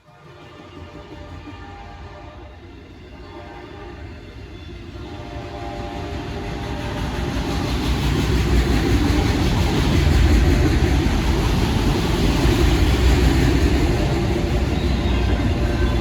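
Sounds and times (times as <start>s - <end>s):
train wheels on rails: 0.0s - 16.0s
locomotive engine rumble: 4.8s - 16.0s.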